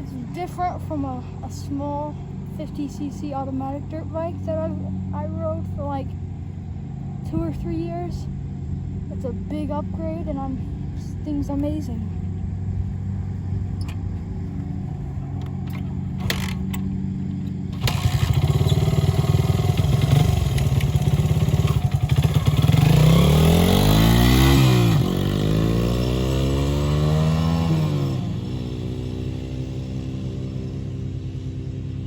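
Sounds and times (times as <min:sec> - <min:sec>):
dirt bike engine revving: 0:15.6 - 0:32.0.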